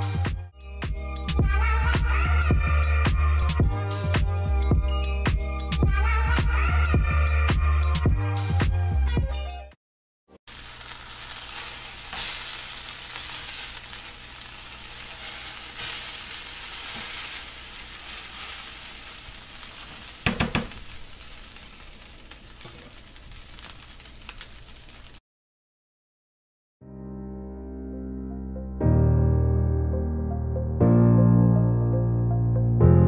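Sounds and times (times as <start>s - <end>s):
vegetables sizzling in butter: 10.5s - 25.2s
utensil knocking against pan: 20.2s - 20.8s.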